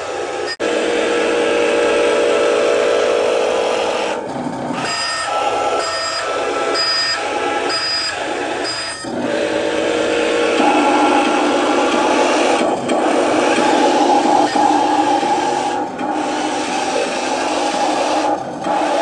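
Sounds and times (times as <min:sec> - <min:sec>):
toy truck engine hum: 0:00.0 - 0:19.0
reversing beep: 0:04.8 - 0:09.1.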